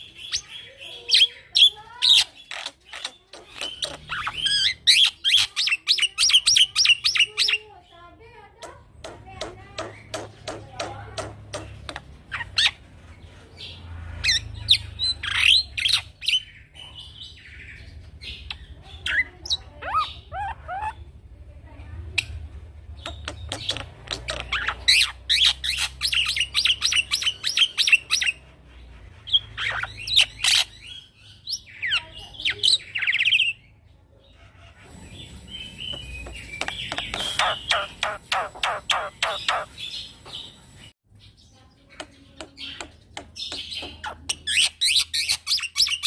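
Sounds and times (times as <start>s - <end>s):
bird chirping and whistling: 23.2s - 28.4s, 35.0s - 39.8s.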